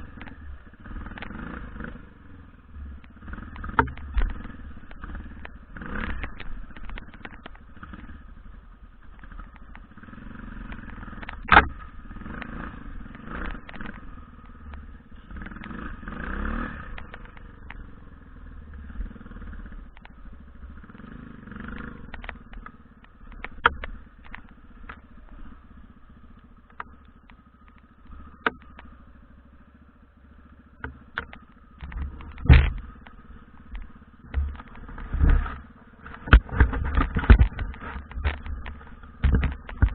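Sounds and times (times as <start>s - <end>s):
dirt bike engine running unevenly: 0.0s - 39.9s
sharp knocks and clatters: 30.8s - 39.9s.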